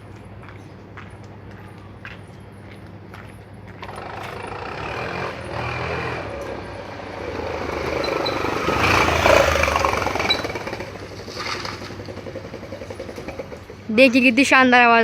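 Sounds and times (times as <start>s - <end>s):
scooter engine revving: 3.8s - 14.1s.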